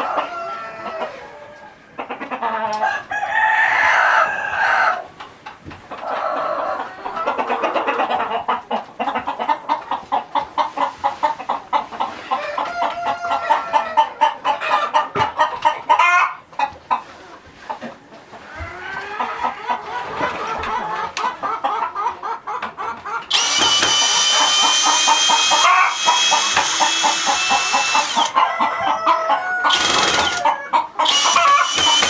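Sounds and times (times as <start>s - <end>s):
chicken crowing: 0.0s - 5.1s, 6.0s - 8.1s, 12.2s - 15.2s, 15.9s - 16.4s, 23.3s - 32.0s
chickens clucking: 0.0s - 32.0s.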